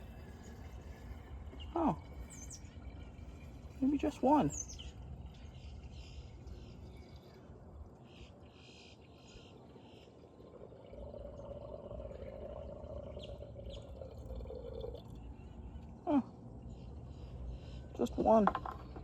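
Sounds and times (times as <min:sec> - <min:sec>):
water pouring from a jug: 0:00.0 - 0:07.9, 0:09.6 - 0:15.9.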